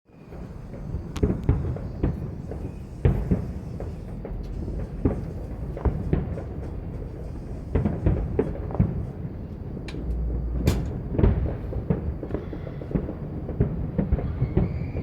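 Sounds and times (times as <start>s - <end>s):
distant fireworks rumble: 0.1s - 15.0s
fireworks bangs and pops: 0.2s - 15.0s.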